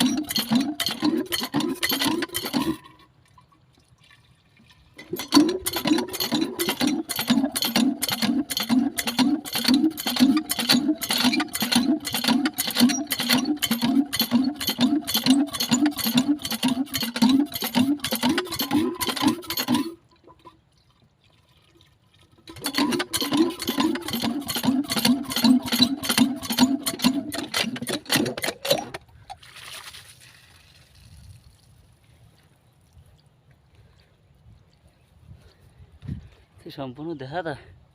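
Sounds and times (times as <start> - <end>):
hand water pump strokes: 0.0 - 3.2, 4.6 - 31.1
water gushing in spurts: 0.0 - 33.3.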